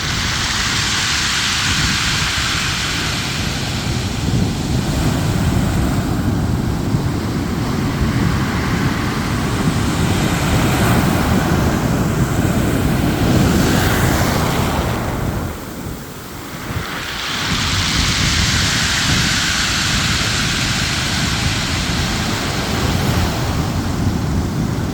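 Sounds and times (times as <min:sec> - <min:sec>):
ocean waves washing: 0:00.0 - 0:24.9
wind buffeting microphone: 0:00.0 - 0:24.9.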